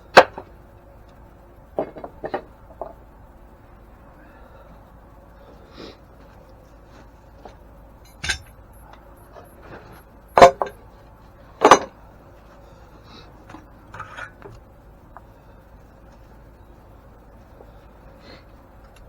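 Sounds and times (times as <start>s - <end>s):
metal tools clinking: 8.0s - 10.8s, 13.9s - 14.6s.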